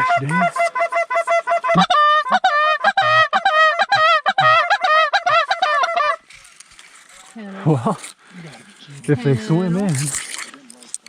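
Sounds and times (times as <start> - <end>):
goose call honks and clucks: 0.0 - 6.2.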